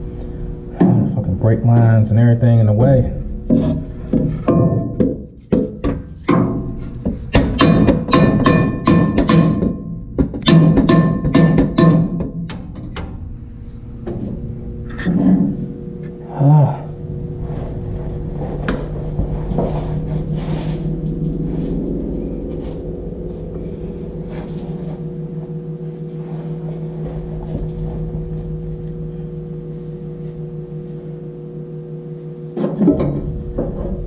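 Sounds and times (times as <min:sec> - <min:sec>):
steady mechanical hum: 0:00.0 - 0:34.0.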